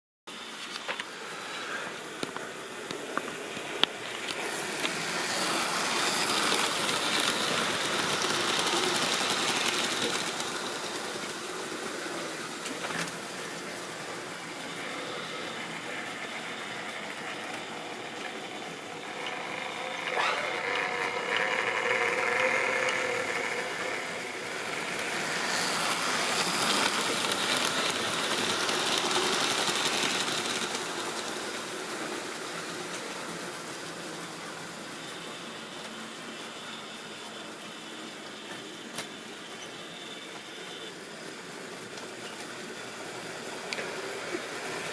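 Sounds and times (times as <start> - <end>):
wheels rattling on rails: 2.3 - 44.9
electric motor whirring: 17.0 - 30.7.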